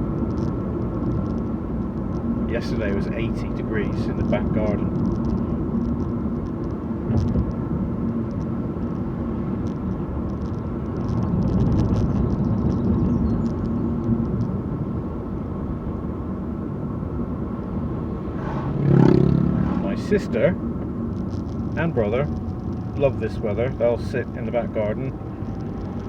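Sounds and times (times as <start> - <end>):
light ticks and rattles: 0.0 - 15.3, 20.3 - 26.0
car engine humming: 0.0 - 26.0
tyres rumbling: 16.3 - 26.0.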